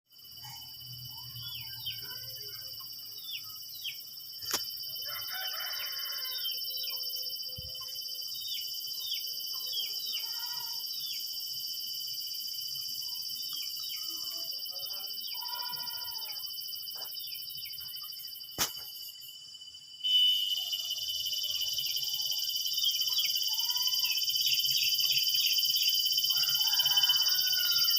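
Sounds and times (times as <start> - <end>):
insects trilling: 0.1 - 27.9
sharp click: 4.4 - 4.7, 18.6 - 18.9.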